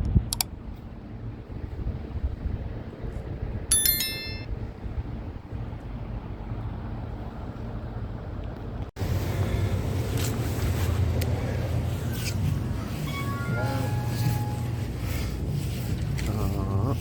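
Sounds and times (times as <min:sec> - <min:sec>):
outdoor background rumble: 0:00.0 - 0:17.0
high metallic ring: 0:03.7 - 0:04.5, 0:12.2 - 0:15.3.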